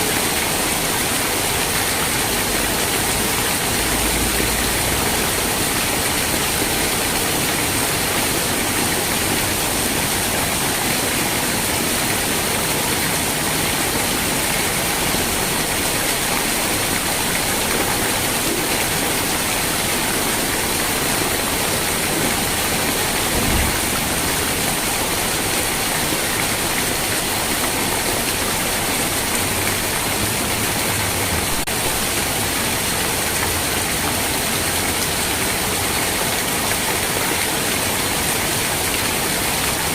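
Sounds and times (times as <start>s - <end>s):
heavy rain hissing: 0.0s - 36.4s
low thump: 23.3s - 24.3s.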